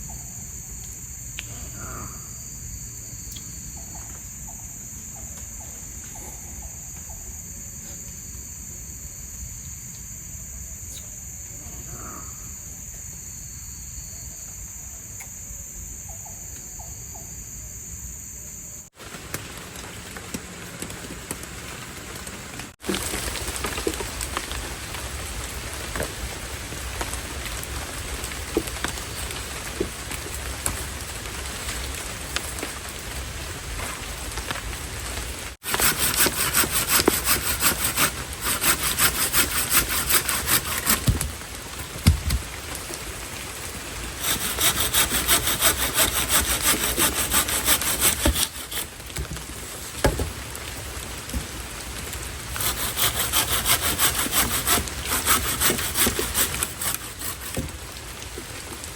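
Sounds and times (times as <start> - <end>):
heavy rain: 19.0 - 36.0, 41.1 - 44.9, 48.8 - 52.6, 57.4 - 58.9
hand saw cutting wood: 35.6 - 41.3, 44.2 - 49.0, 52.5 - 57.8.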